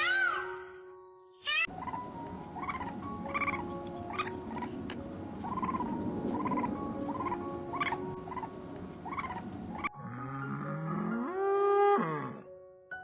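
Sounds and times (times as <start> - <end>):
animal calls: 1.5 - 4.8, 5.4 - 12.4.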